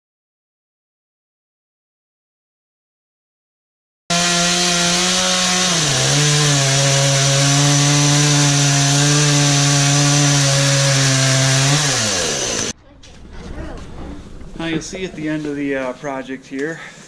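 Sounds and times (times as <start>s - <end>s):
chainsaw cutting wood: 4.1s - 12.7s.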